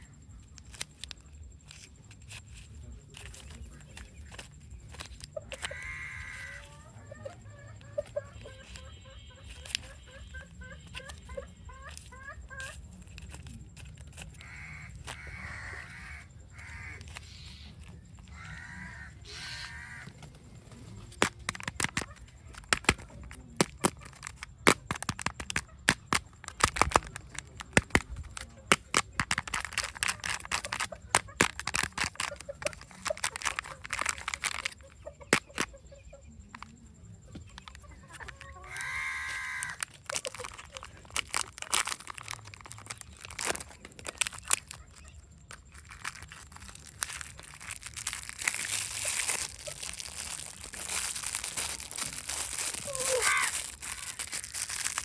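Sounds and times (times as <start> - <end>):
wrappers crinkling and tearing: 0.5 - 6.7, 7.9 - 35.7, 37.5 - 55.0
plastic capsules snapping open: 21.1 - 35.7, 37.4 - 44.8, 45.5 - 55.0.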